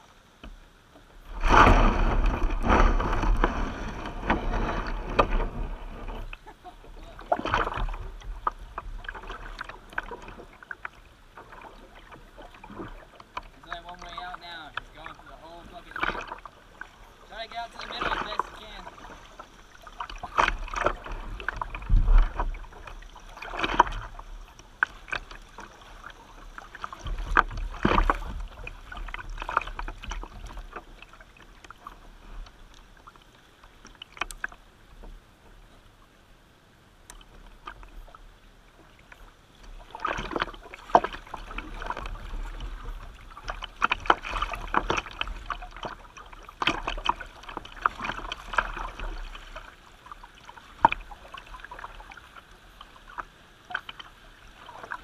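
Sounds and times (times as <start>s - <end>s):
kayak paddle splashing water: 0.0s - 36.2s, 36.9s - 55.0s
low rumbles: 1.2s - 9.9s.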